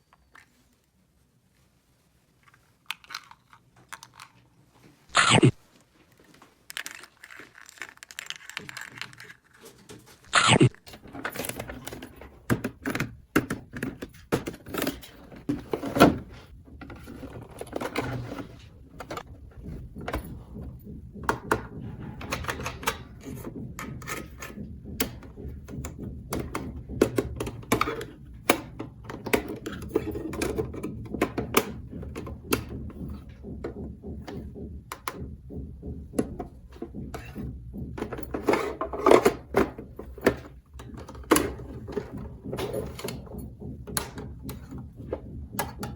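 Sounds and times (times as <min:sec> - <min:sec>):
plastic toy pieces clicking: 0:02.8 - 0:04.4, 0:06.7 - 0:09.6.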